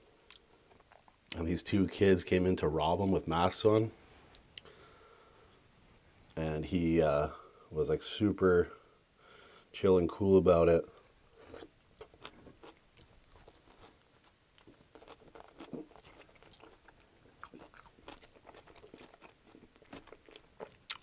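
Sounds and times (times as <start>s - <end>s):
close-miked chewing: 11.4s - 21.0s.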